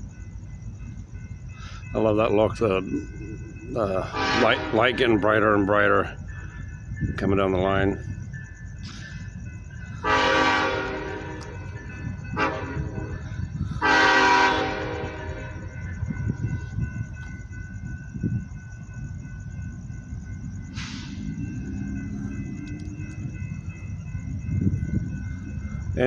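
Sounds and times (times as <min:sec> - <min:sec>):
locomotive air horn blasts: 0:04.1 - 0:04.9, 0:10.0 - 0:11.6, 0:12.4 - 0:13.1, 0:13.8 - 0:15.6.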